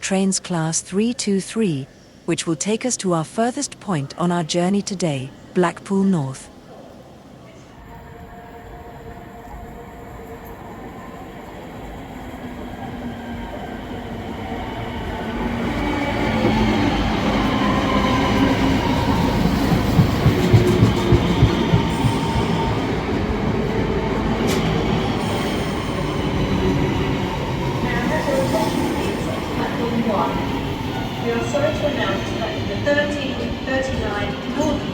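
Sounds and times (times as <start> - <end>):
electric train running on rails: 7.8 - 34.9.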